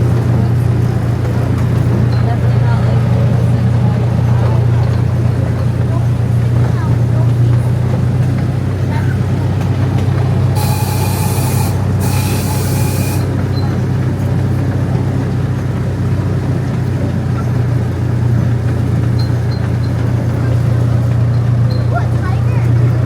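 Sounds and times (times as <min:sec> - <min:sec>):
small train engine humming: 0:00.0 - 0:23.0
breathy train whistle: 0:10.6 - 0:13.4.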